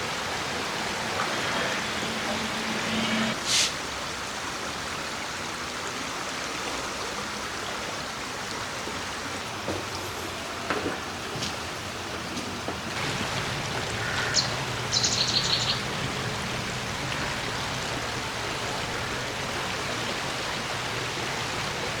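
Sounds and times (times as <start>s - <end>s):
steady hiss: 0.0s - 4.0s, 13.0s - 22.0s
bird chirping: 13.0s - 19.4s.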